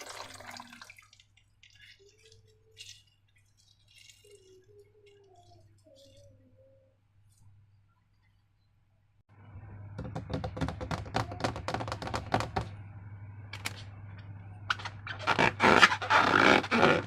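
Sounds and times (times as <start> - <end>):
wet slime squelching: 0.4 - 6.3.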